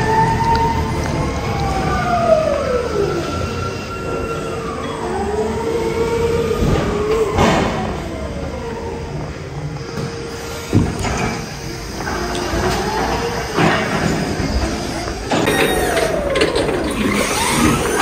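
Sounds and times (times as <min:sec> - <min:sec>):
metal squeals sliding in pitch: 0:15.4 - 0:18.0.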